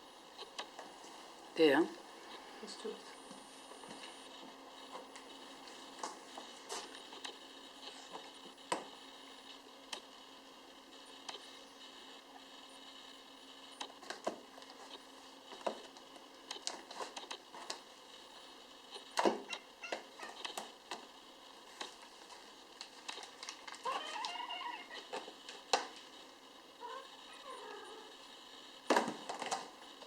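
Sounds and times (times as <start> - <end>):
kitten mewing: 23.8 - 25.1.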